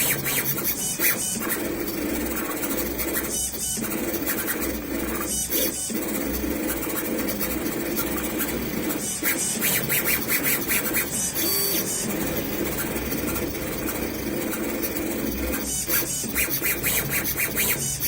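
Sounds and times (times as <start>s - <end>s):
engraving machine motors whirring: 0.0s - 18.0s.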